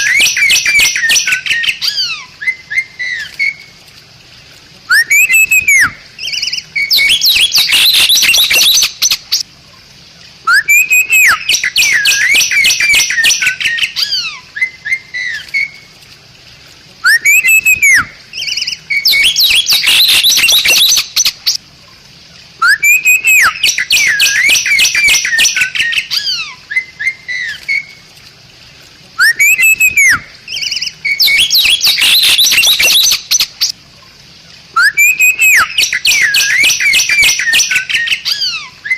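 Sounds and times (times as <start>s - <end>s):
starling singing: 4.9s - 9.2s, 17.1s - 21.2s, 29.2s - 33.5s.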